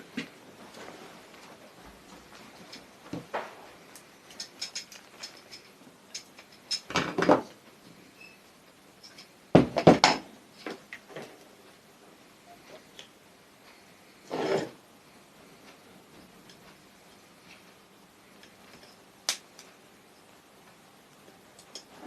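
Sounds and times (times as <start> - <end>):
metal tools clinking: 4.3 - 7.0
metal parts clattering: 4.3 - 7.3.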